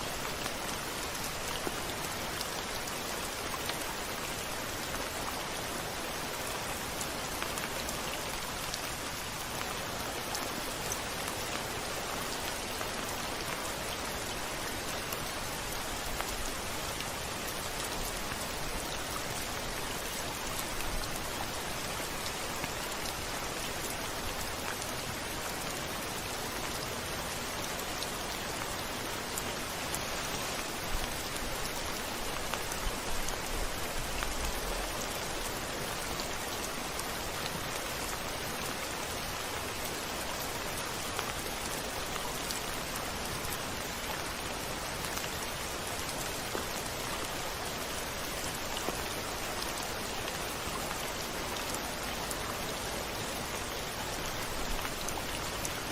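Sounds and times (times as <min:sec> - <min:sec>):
rain pattering on a surface: 0:00.0 - 0:55.9.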